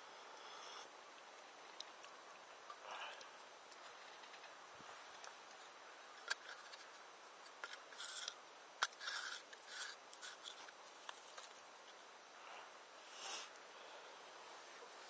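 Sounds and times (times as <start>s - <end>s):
scraping or rubbing sounds: 7.6s - 11.5s.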